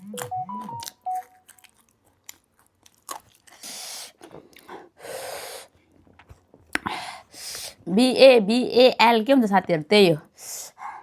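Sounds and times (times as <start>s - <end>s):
crunching and chewing: 0.0s - 4.8s.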